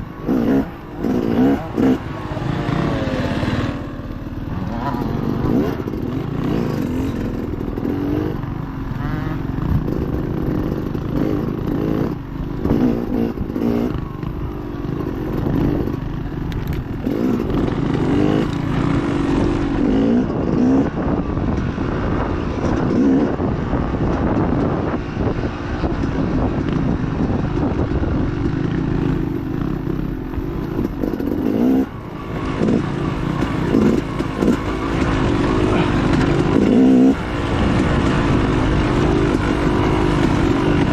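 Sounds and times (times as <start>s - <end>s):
dirt bike engine revving: 0.0s - 25.0s, 27.6s - 40.9s
bike rattling over bumps: 0.0s - 40.9s.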